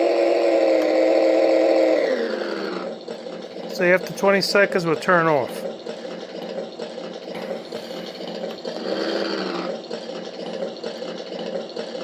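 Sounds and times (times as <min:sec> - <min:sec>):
boat engine sound through speaker: 0:03.7 - 0:05.7.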